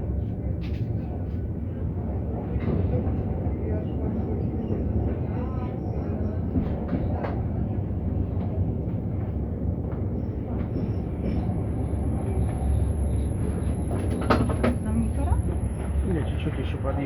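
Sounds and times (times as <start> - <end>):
train rumble inside carriage: 0.0 - 17.0
wheels clicking on rail joint: 10.6 - 16.8.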